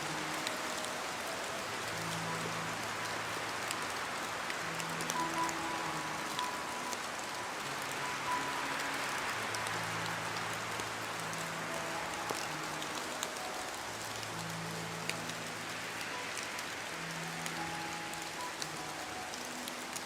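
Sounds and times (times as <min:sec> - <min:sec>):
soft background music: 0:00.0 - 0:20.0
steady rain: 0:00.0 - 0:20.0.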